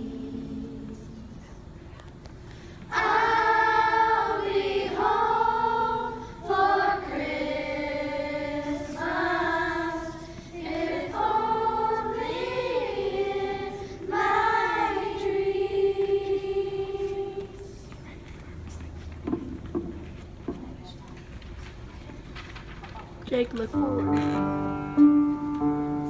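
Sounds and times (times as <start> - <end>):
children's choir singing: 0.0 - 1.4, 2.9 - 17.9.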